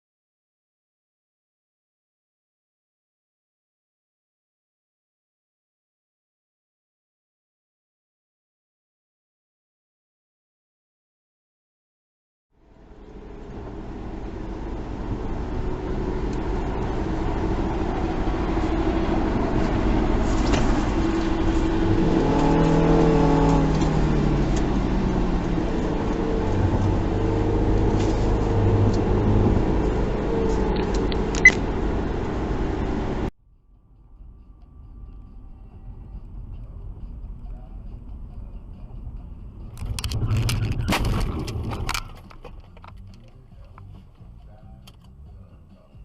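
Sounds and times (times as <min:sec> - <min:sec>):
car engine and road noise: 0:12.5 - 0:46.0.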